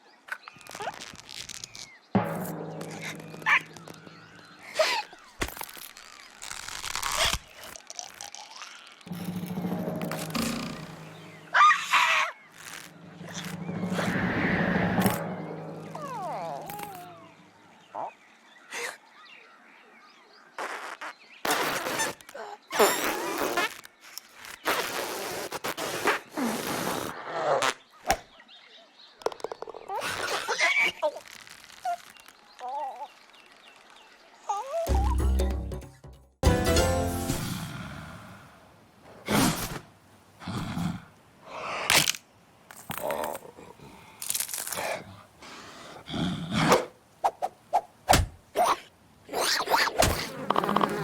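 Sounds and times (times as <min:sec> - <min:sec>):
sharp hit: 0:02.2 - 0:04.8, 0:09.1 - 0:11.9, 0:12.6 - 0:17.5.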